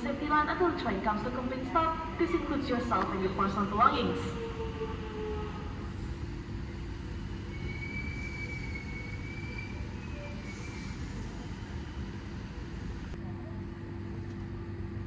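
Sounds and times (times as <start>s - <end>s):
electric train rumbling: 0.0s - 15.0s
faint high brake squeal: 7.0s - 12.0s.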